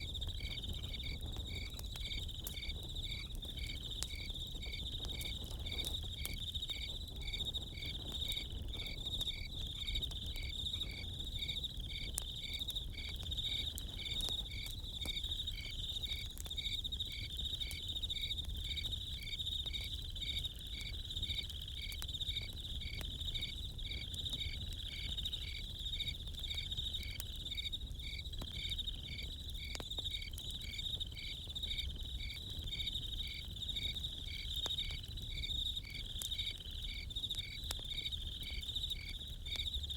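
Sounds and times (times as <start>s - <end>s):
campfire crackling: 0.0s - 39.9s
crickets chirping: 0.0s - 39.9s.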